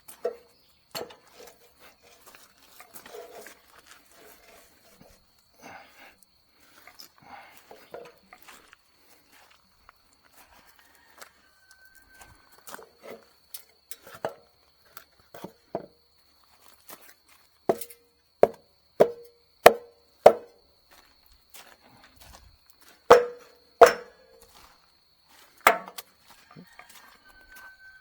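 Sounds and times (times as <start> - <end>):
sharp ringing knocks: 17.7 - 20.5, 23.1 - 24.3, 25.7 - 26.0.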